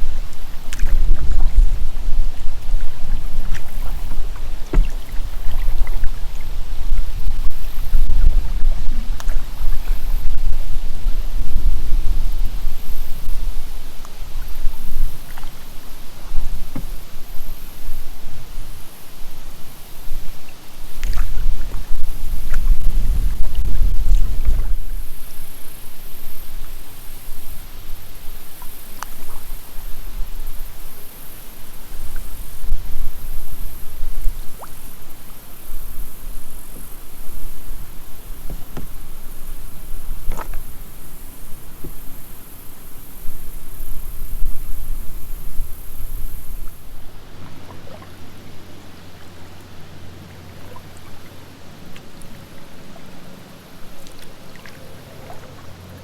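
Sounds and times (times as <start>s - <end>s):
paddle splashing water: 0.0s - 56.0s
wind rumble on microphone: 0.0s - 56.0s.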